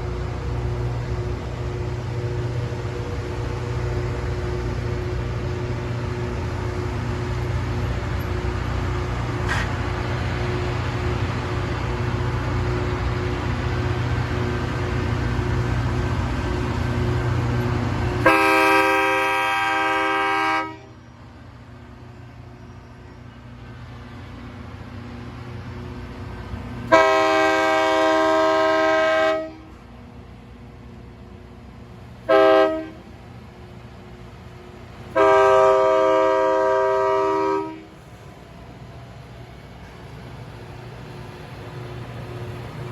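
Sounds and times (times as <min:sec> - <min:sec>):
locomotive horn blasts: 0:18.2 - 0:21.0, 0:26.8 - 0:29.8, 0:32.2 - 0:33.1, 0:35.1 - 0:38.0.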